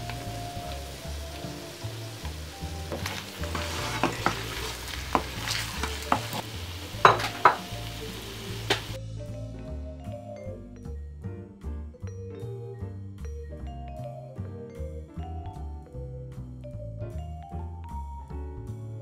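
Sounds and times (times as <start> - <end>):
pasta sizzling in frying pan: 0.0 - 9.0
wooden spoon knocking on pan: 2.8 - 7.8.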